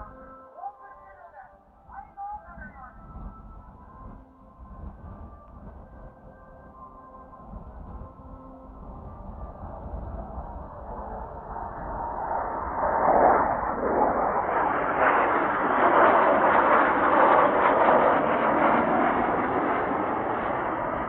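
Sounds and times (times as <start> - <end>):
jet planes flying past: 1.8 - 21.0.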